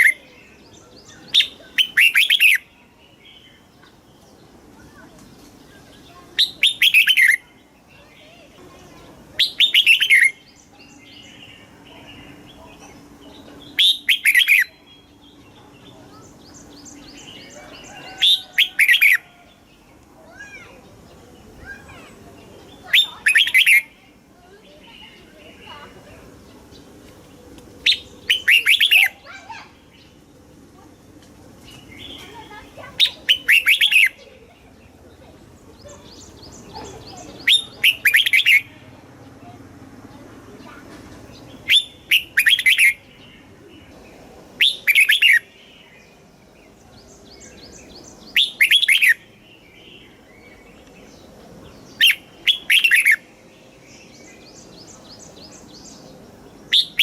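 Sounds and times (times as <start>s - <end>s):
faint bird chirps: 0.0s - 39.6s, 40.6s - 57.0s
bird warbling: 1.1s - 2.7s, 11.9s - 14.9s, 21.6s - 24.0s, 27.8s - 30.1s, 32.0s - 34.6s, 35.8s - 38.8s, 41.6s - 43.1s, 44.6s - 45.6s, 48.2s - 49.3s, 51.8s - 53.3s
faint high chirps: 27.5s - 30.9s.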